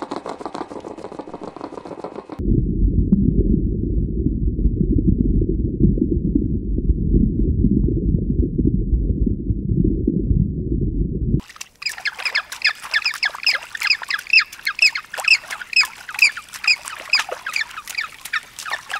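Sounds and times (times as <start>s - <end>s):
loud low rumbling: 2.4s - 11.4s
birds squawking: 11.8s - 18.9s.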